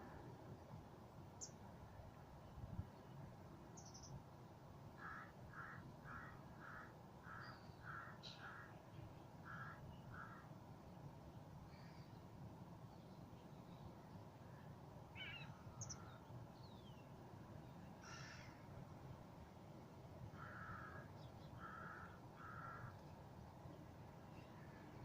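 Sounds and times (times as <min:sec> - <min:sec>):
small birds chirping: 0:03.8 - 0:04.2, 0:15.2 - 0:18.6
bird calling faintly: 0:14.4 - 0:17.0, 0:17.8 - 0:18.7, 0:20.4 - 0:23.2.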